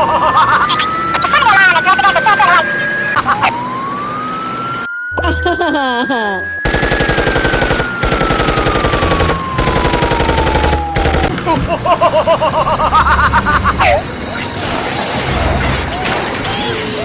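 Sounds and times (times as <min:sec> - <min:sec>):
fast machine-gun-like rattle: 0:06.7 - 0:11.3.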